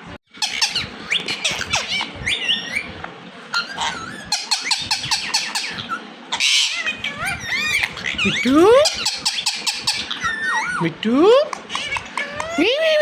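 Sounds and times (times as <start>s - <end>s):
parrot chirps and whistles: 0.3s - 10.8s.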